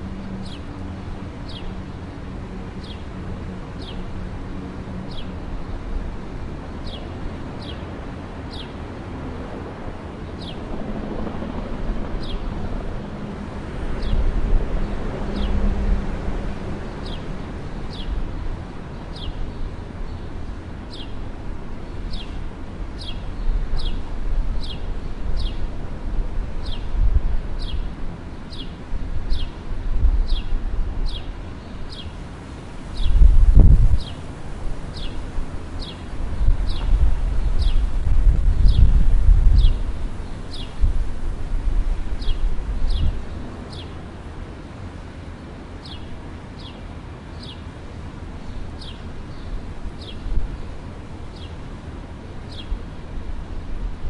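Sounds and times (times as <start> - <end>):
bird chirping: 0.3 - 0.7
wind on microphone: 9.6 - 19.8, 20.9 - 32.0, 32.7 - 43.9.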